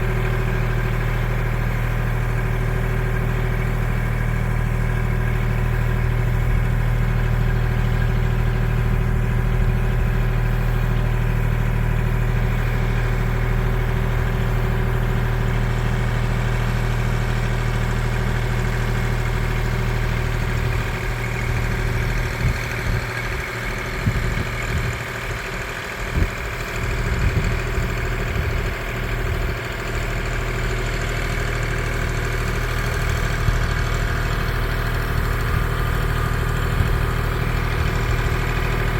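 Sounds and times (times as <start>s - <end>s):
tractor diesel engine idling: 0.0s - 38.9s.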